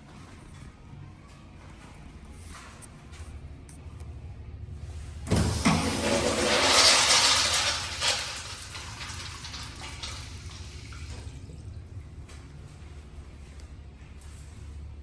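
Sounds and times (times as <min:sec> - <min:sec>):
toilet flushing: 0:05.2 - 0:11.9
toilet tank refilling hiss: 0:05.3 - 0:11.3.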